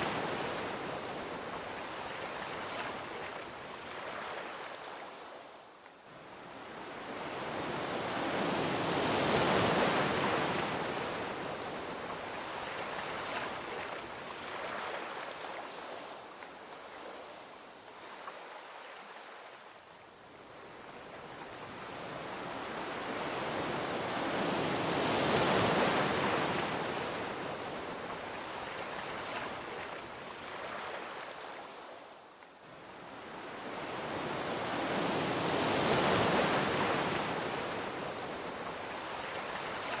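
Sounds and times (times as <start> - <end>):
ocean surf washing onto beach: 33.0 - 40.0.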